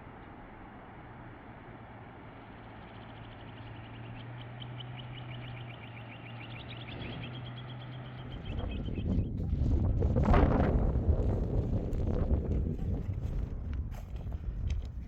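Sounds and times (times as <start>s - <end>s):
bird trilling chirps: 2.7s - 9.2s.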